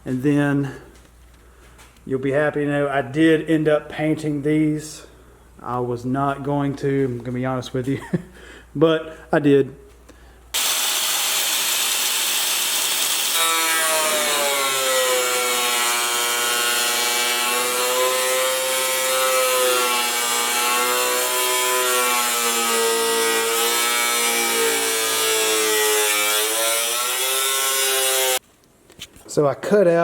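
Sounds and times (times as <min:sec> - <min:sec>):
drill hole saw cutting metal: 0:10.6 - 0:28.4.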